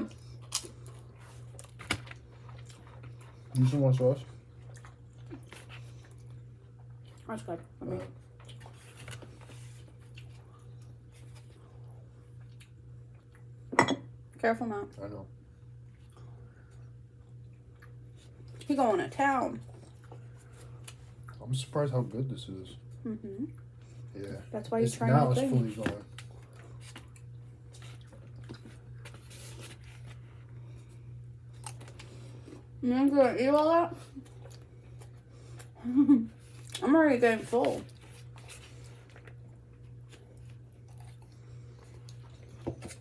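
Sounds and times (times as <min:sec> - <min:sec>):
wet chewing and squishing: 0:00.0 - 0:13.5, 0:15.9 - 0:18.7, 0:19.6 - 0:21.4, 0:26.0 - 0:32.7, 0:33.5 - 0:35.8, 0:36.4 - 0:36.9, 0:37.6 - 0:43.0
steady low hum: 0:00.0 - 0:43.0.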